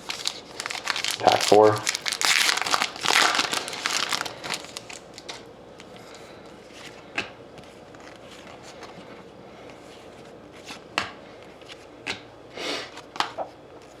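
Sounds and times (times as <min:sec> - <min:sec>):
wrapper tearing and crinkling: 0:00.0 - 0:05.4
cards rustling: 0:00.0 - 0:07.0.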